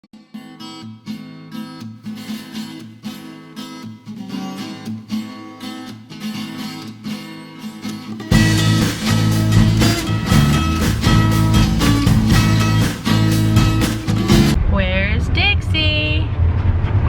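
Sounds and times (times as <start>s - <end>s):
strummed acoustic guitar chords: 0.2s - 14.6s
heavy bass line: 8.3s - 16.6s.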